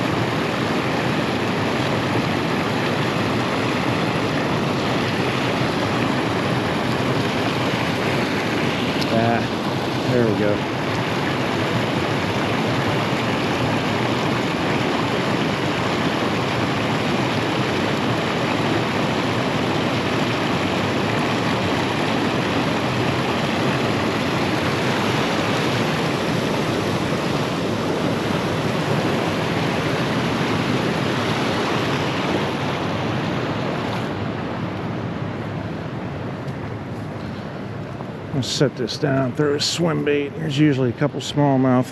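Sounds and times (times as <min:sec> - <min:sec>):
fast-flowing creek water: 0:00.0 - 0:41.9.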